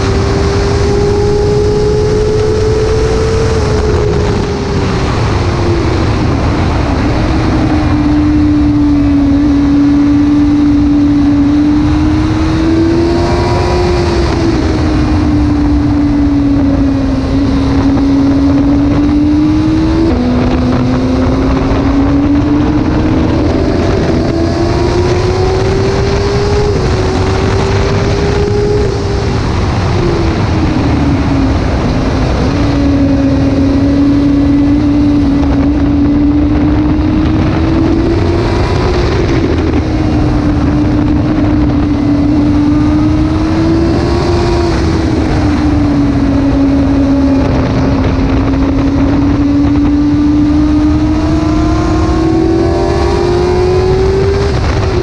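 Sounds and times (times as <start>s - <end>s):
motorcycle engine at high revs: 0.0s - 55.0s
wind rushing: 0.0s - 55.0s.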